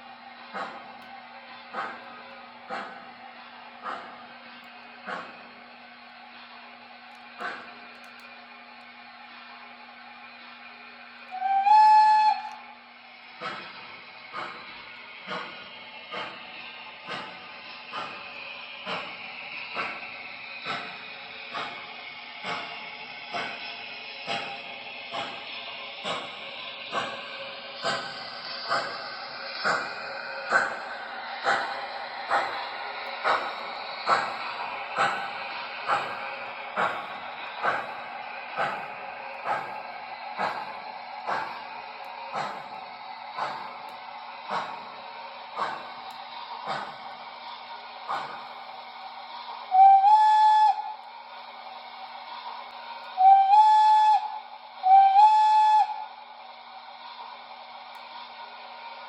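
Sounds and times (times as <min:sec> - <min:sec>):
model steam locomotive chuffing: 0:00.0 - 0:59.0
steam whistle blasts: 0:11.3 - 0:12.7, 0:49.7 - 0:51.0, 0:53.2 - 0:56.1.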